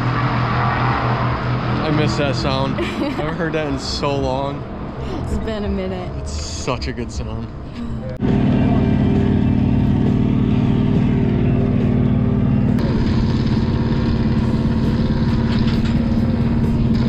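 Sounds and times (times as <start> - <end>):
race car engines running loud: 0.0 - 17.0.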